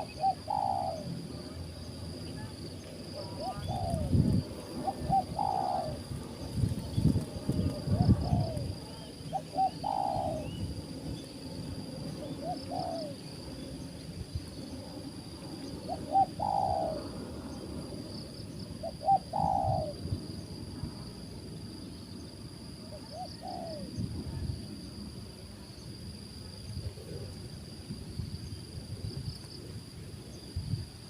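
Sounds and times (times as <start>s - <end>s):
dove cooing: 0.0s - 1.2s, 3.2s - 6.1s, 7.5s - 10.7s, 12.2s - 13.3s, 15.8s - 17.2s, 18.8s - 20.0s, 22.9s - 23.9s
high insect drone: 0.0s - 31.0s.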